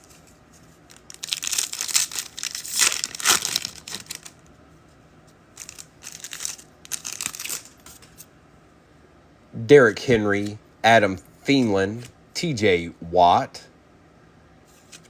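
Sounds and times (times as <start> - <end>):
card pack wrapper crinkling: 0.8 - 4.4, 5.6 - 8.2.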